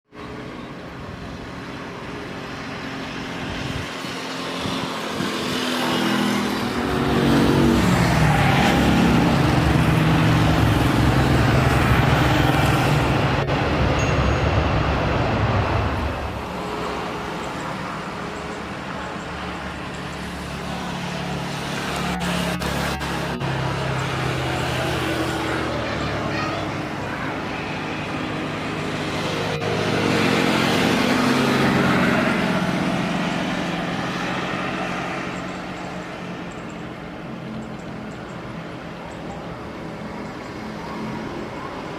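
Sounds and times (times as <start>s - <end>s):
jet aircraft passing overhead: 0.2s - 18.8s, 19.4s - 36.4s.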